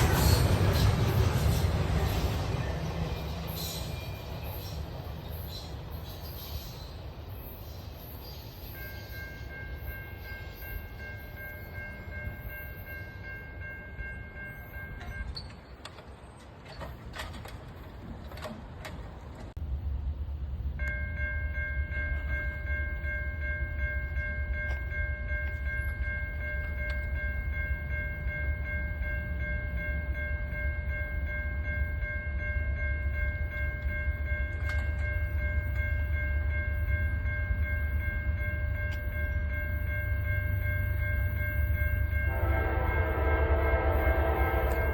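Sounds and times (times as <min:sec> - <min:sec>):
train rumble: 0:00.0 - 0:44.9
high warning bell ringing: 0:20.8 - 0:44.9.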